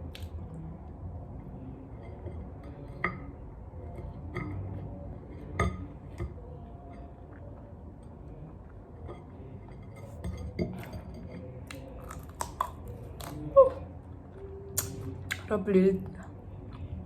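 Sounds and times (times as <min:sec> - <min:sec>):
cutlery clinking against dish: 0:09.1 - 0:11.9.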